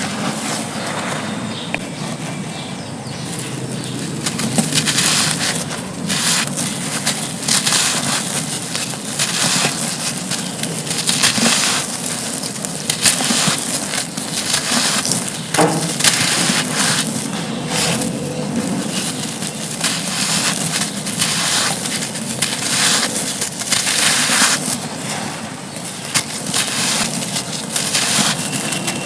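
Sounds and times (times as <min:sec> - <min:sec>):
crumbly slabs crushed by hand: 0:03.4 - 0:29.0.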